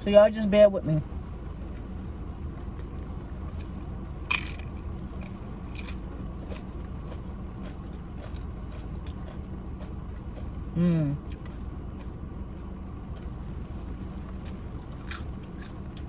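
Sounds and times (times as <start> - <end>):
short crisp crunches: 3.6 - 6.9, 14.5 - 16.0.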